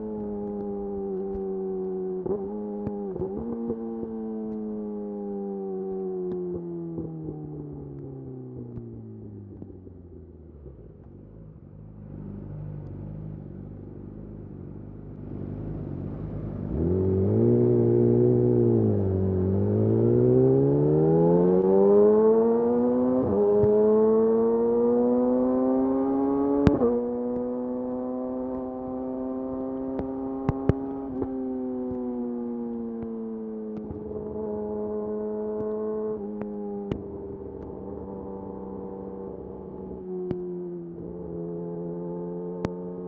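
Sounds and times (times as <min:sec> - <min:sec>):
motorcycle engine revving: 0:12.0 - 0:32.0.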